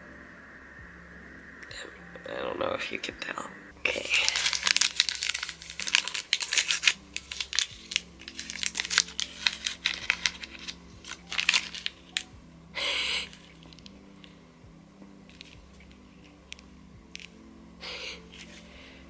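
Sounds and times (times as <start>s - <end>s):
packaging crinkling: 3.9s - 12.3s
packaging tearing: 3.9s - 12.3s.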